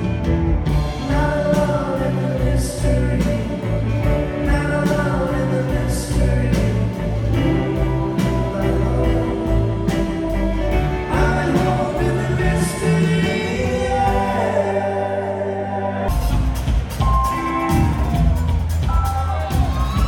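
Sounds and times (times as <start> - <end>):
person singing: 0.0 - 16.4
live rock band playing: 0.0 - 20.0.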